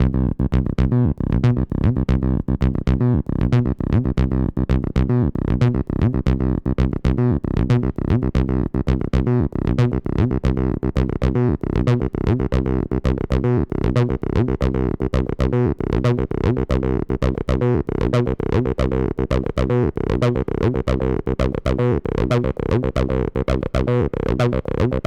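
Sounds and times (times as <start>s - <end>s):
synthesizer bassline: 0.0s - 25.0s.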